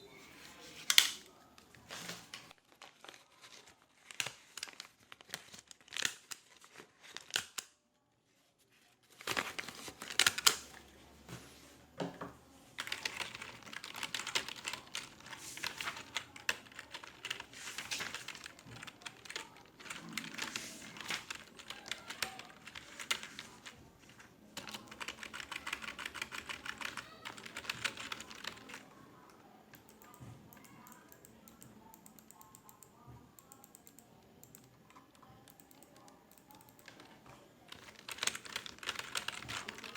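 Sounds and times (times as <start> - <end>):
computer keyboard typing: 9.3 - 10.8, 12.8 - 23.8, 24.6 - 28.9, 29.7 - 37.1, 37.7 - 39.9.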